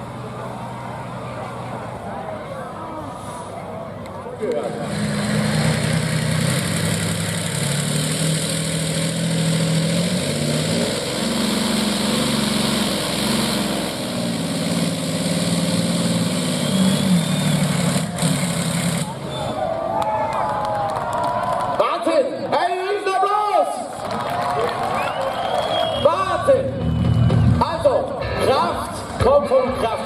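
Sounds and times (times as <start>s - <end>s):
heavy engine running under load: 0.0s - 21.5s.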